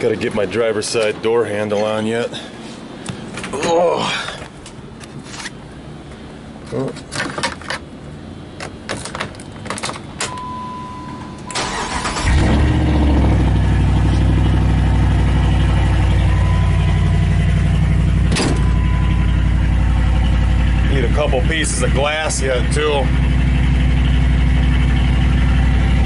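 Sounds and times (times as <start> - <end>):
steady beep: 10.3 - 11.6, 15.3 - 20.8
engine cranking and idling: 11.4 - 26.0.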